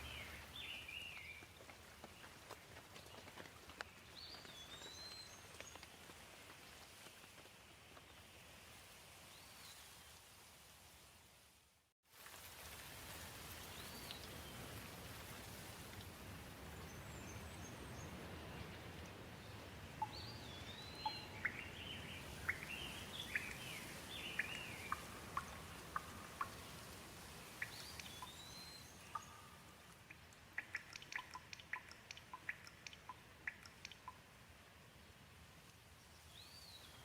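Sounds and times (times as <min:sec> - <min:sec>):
bird chirping: 0:00.0 - 0:01.4, 0:20.0 - 0:26.7, 0:27.4 - 0:34.2
gentle rain hiss: 0:00.0 - 0:37.0
water drips pattering: 0:22.4 - 0:28.5, 0:29.1 - 0:34.3.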